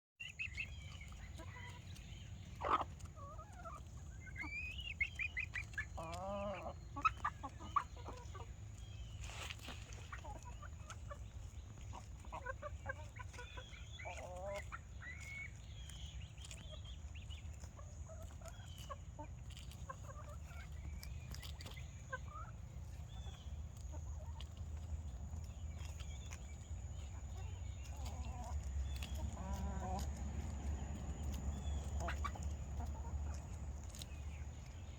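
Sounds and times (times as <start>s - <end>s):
chickens clucking: 0.2s - 34.9s
steady low rumble: 20.7s - 34.9s.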